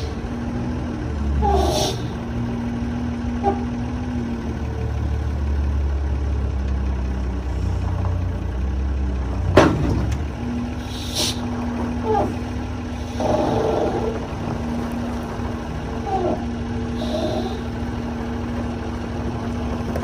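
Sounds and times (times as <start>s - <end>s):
engine-like rumble: 0.0s - 20.0s
short squeaks: 12.0s - 12.4s.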